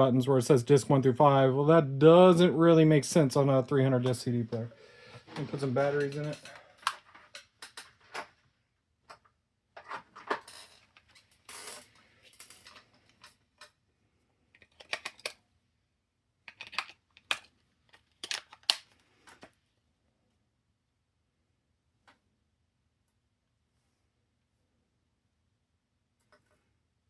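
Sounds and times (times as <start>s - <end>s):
plastic remote control clicks and rattles: 14.6s - 15.4s, 16.5s - 19.5s.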